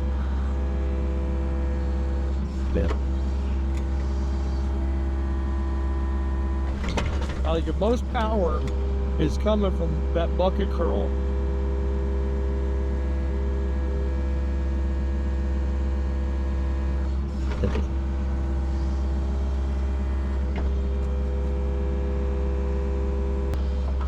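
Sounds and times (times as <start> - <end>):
excavator diesel engine running: 0.0 - 11.4.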